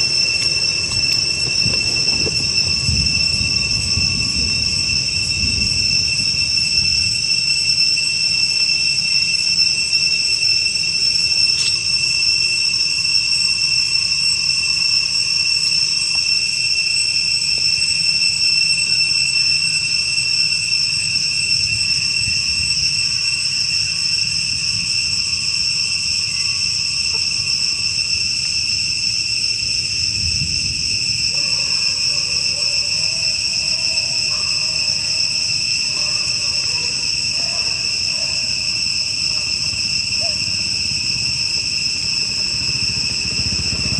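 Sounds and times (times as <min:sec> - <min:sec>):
high-pitched insect chorus: 0:00.0 - 0:43.9
faint wavering call: 0:39.3 - 0:40.7.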